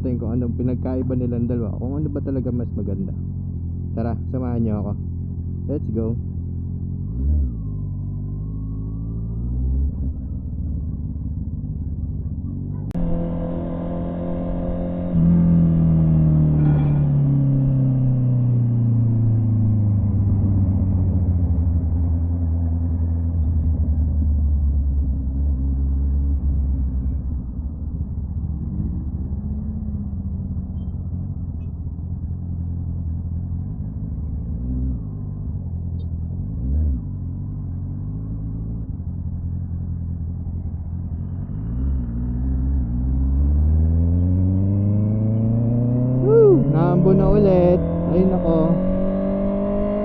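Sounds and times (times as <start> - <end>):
motorcycle exhaust drone: 0.0 - 50.0.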